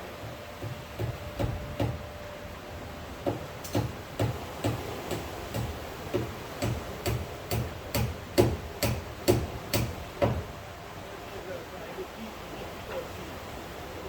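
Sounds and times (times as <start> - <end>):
hollow knocks: 0.2 - 2.0.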